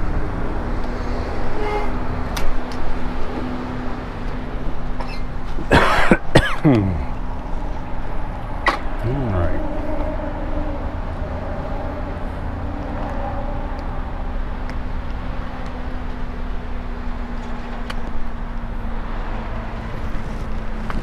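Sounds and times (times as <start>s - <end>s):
road and wind noise: 0.0s - 21.0s
low hum: 6.8s - 16.9s.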